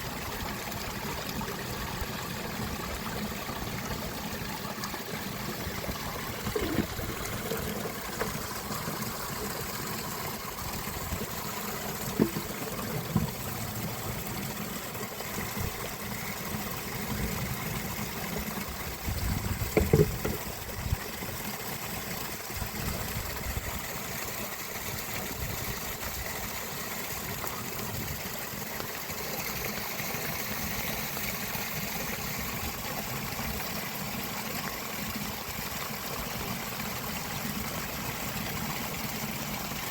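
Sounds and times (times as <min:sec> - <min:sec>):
knocks: 0:19.7 - 0:20.4.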